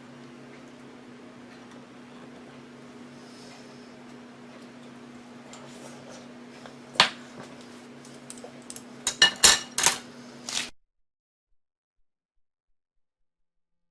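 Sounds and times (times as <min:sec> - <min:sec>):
steady low hum: 0:00.0 - 0:10.6
utensils clinking against dishes: 0:08.0 - 0:10.0.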